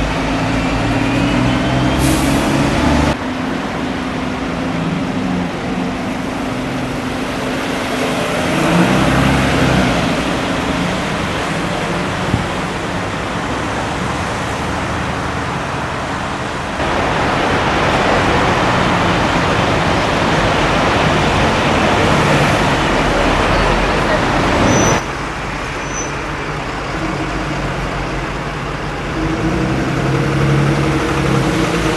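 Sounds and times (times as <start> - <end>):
vehicle engines running: 0.0 - 31.9.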